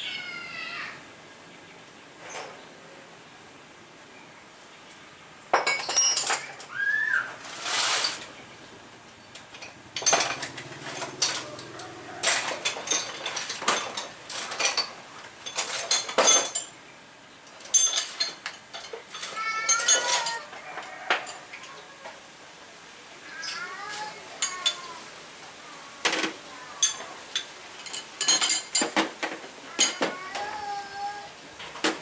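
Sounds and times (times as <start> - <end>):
metal tools clinking: 5.5 - 6.7, 9.4 - 16.8, 17.5 - 21.8, 24.4 - 24.9, 26.8 - 30.2.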